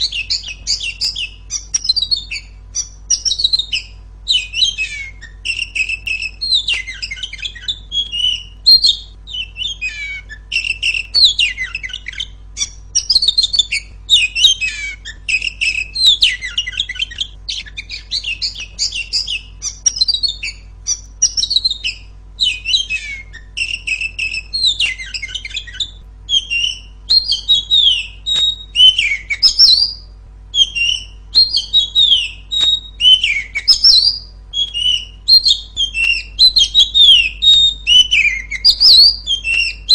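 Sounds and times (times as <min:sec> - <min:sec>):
bird singing chirps and whistles: 0:00.0 - 0:39.9
faint low hum: 0:00.0 - 0:39.9.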